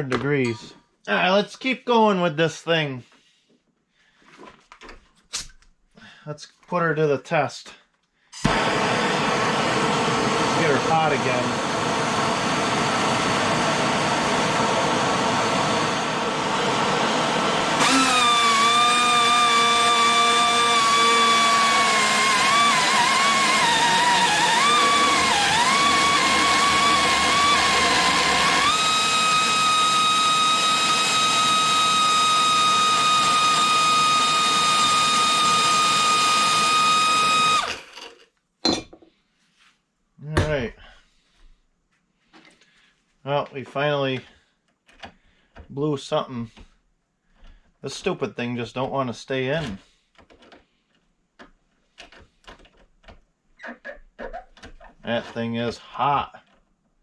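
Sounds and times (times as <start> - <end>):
pneumatic angle grinder whining: 8.4 - 38.2.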